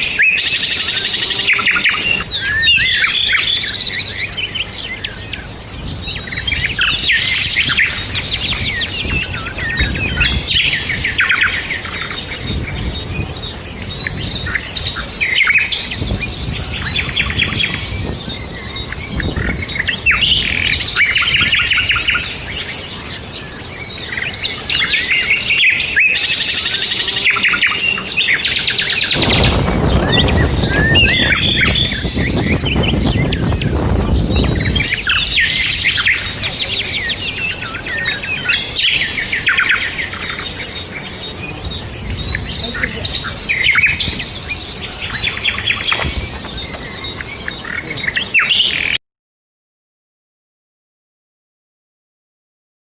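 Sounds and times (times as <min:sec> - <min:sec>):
birds chirping and trilling: 0:00.0 - 0:49.0
low rumbling noise: 0:15.8 - 0:48.0.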